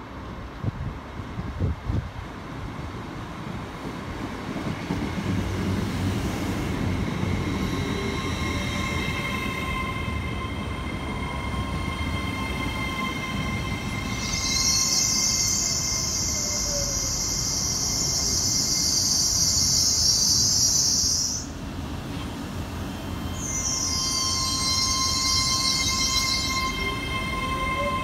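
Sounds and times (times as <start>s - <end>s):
train wheels rumbling: 3.2s - 28.0s
high whining tones: 6.8s - 21.4s, 23.2s - 28.0s.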